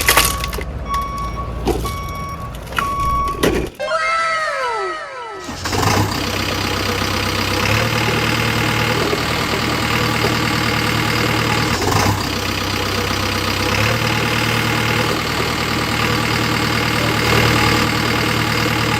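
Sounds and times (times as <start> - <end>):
engine idling: 0.0 - 18.9
short clatter: 5.5 - 18.9.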